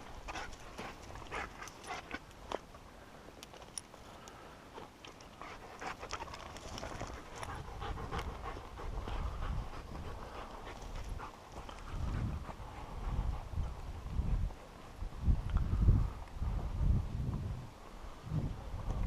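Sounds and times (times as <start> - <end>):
dog panting: 0.2 - 2.2, 5.2 - 13.8.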